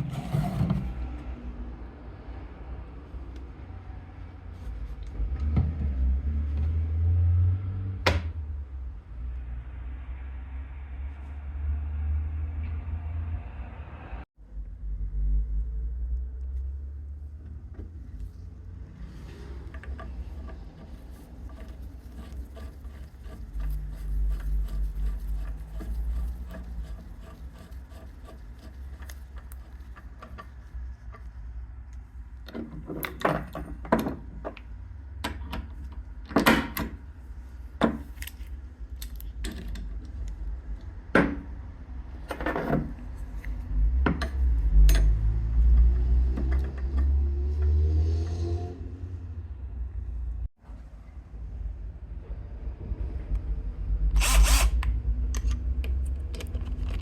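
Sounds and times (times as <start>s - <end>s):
low rumble: 8.4s - 17.6s.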